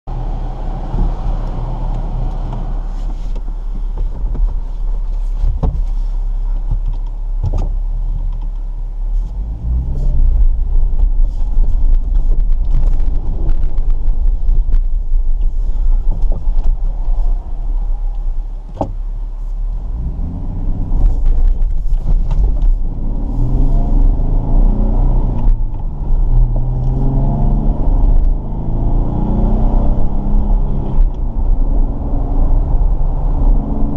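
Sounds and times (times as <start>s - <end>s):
knocks and clunks: 2.5s - 6.0s, 18.1s - 19.0s
engine revving: 22.8s - 31.1s.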